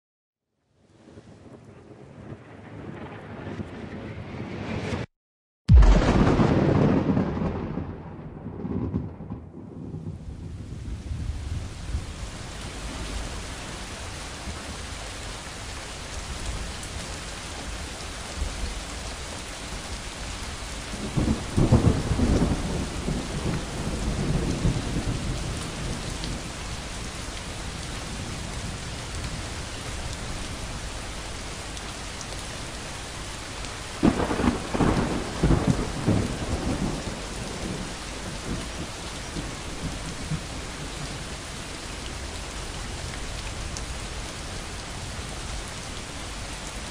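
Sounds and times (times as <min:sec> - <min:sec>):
steady rain: 0:00.8 - 0:05.1, 0:05.7 - 0:46.9
thunder rumbling: 0:01.2 - 0:05.1, 0:05.7 - 0:14.7, 0:20.6 - 0:31.1, 0:33.9 - 0:41.5
sharp thunder crack: 0:05.7 - 0:11.4, 0:34.0 - 0:38.6.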